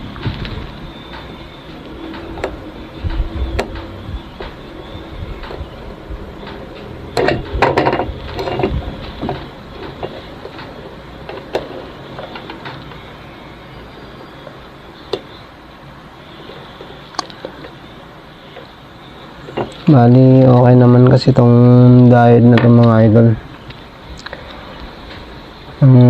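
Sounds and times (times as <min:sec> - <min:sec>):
tools clattering and rustling: 0:06.4 - 0:12.9.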